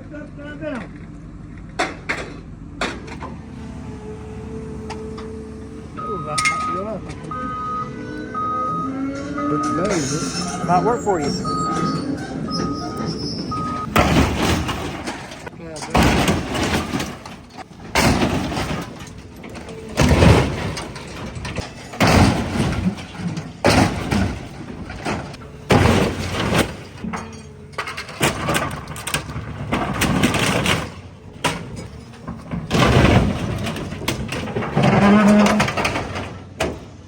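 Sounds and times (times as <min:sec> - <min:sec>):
sheet metal crashing and crunching: 0:09.8 - 0:37.0.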